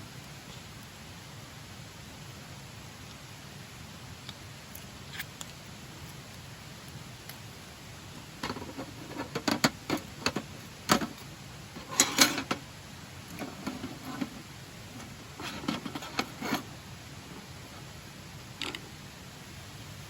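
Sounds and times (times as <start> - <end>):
sharp clicks and light knocks: 8.4 - 12.6.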